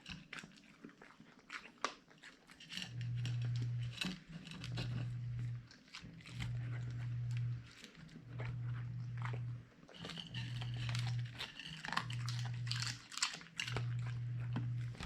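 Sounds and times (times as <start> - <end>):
dog chewing and crunching: 0.0 - 15.0
low hum: 4.6 - 13.0, 13.6 - 15.0.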